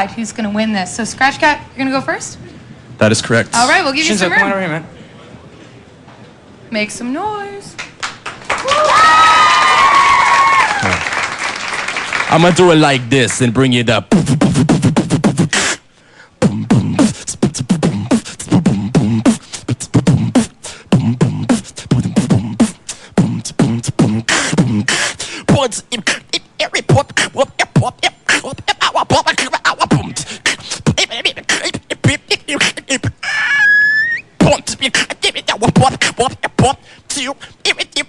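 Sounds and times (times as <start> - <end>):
man beatboxing: 12.3 - 38.0.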